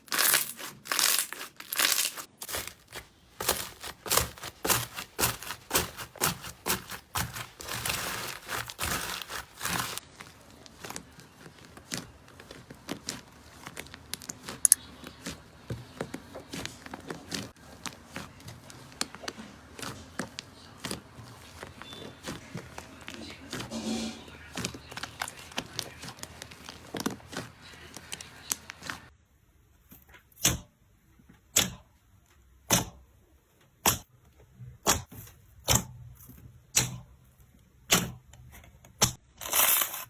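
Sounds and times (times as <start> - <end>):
slime crackling and popping: 0.0 - 15.4.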